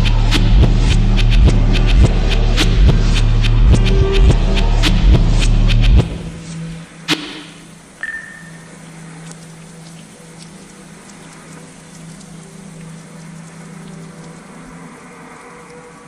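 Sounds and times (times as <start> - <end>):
music with heavy bass and drums: 0.0 - 7.6
rain: 0.0 - 16.0
brief high tone: 8.0 - 8.7.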